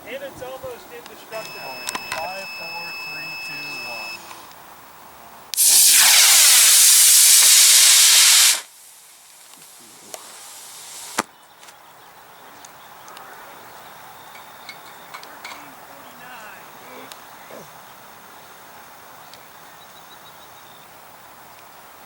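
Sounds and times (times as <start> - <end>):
rocket motor rushing hiss: 5.5 - 11.3.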